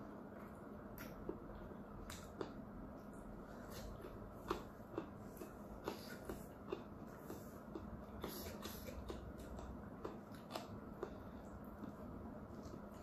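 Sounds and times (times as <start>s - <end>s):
faint steady hum: 0.0s - 13.0s
person chewing with mouth clicks: 0.9s - 13.0s.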